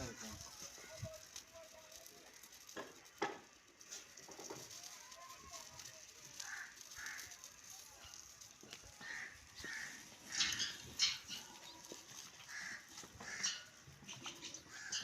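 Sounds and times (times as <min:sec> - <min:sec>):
fowl calling: 0:06.3 - 0:07.6, 0:08.9 - 0:15.0.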